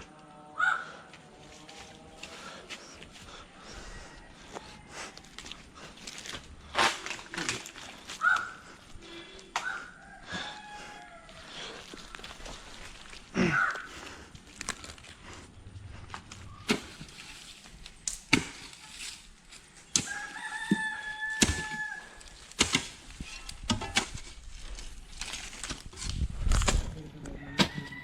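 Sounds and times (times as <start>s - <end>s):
rooster crowing: 3.6s - 5.3s, 9.6s - 12.0s, 20.0s - 22.3s, 27.3s - 28.0s.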